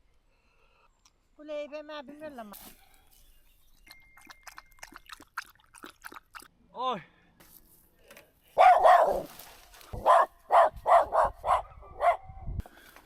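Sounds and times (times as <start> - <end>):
dog barking: 8.6 - 9.3, 10.0 - 12.3.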